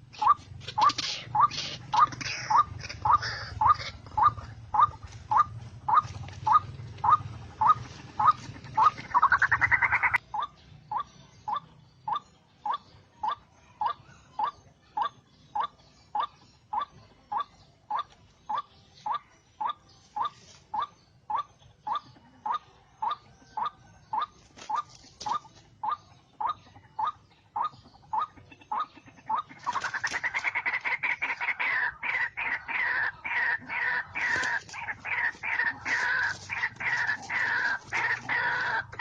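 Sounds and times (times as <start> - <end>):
waterhen call: 0.2 - 10.5, 29.3 - 39.0.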